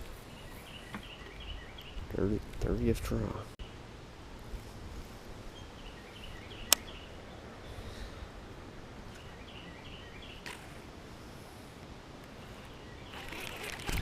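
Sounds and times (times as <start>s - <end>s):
bird chirping: 0.2s - 2.4s, 5.5s - 8.1s, 9.1s - 10.7s, 12.5s - 14.0s
wind rumble on microphone: 13.7s - 14.0s.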